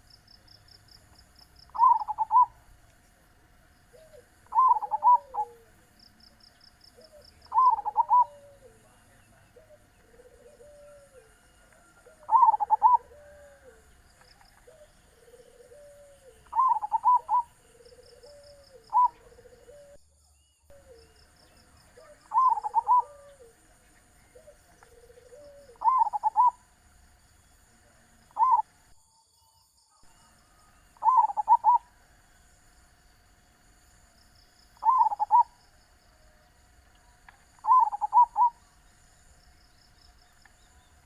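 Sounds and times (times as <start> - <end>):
doves cooing: 0.0 - 2.8, 3.9 - 6.0, 6.8 - 20.0, 20.7 - 26.8, 27.9 - 28.8, 30.1 - 32.2, 34.8 - 39.2
insect chirring: 0.0 - 2.9, 3.6 - 20.0, 20.7 - 41.0.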